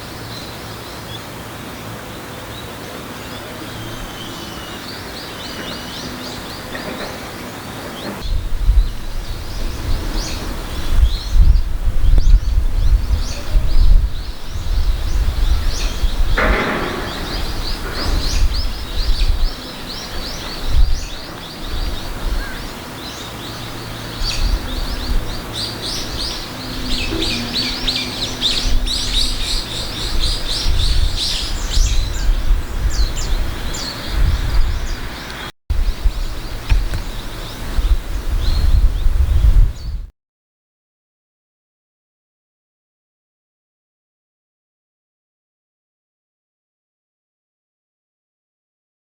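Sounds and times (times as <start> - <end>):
small birds chirping: 0.0 - 40.1
harsh lower bird call: 2.5 - 39.2.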